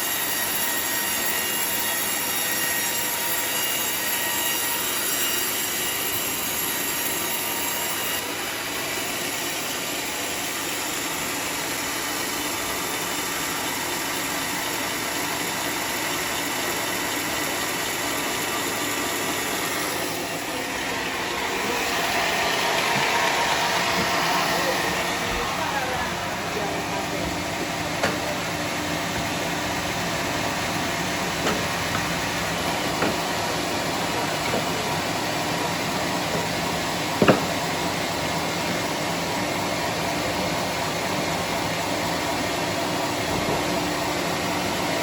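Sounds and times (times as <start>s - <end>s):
saw cutting timber whining: 0.0s - 45.0s.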